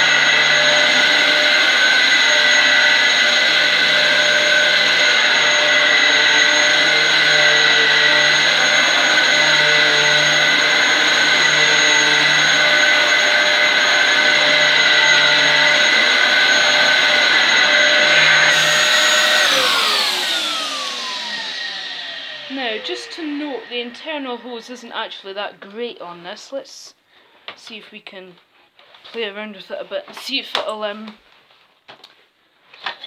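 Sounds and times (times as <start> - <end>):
vacuum cleaner running on carpet: 0.0 - 25.1.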